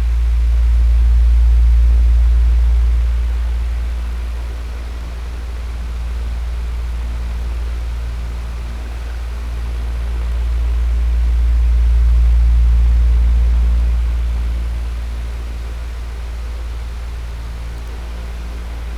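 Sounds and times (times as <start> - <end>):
electric fan running: 0.0 - 18.9.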